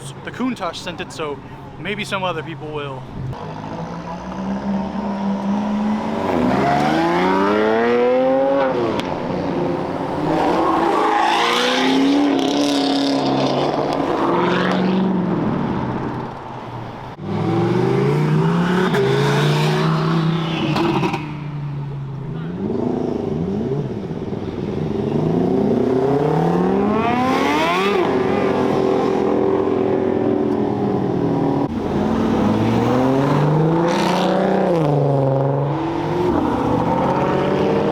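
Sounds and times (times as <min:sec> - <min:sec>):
car engines revving and accelerating: 0:03.0 - 0:37.9.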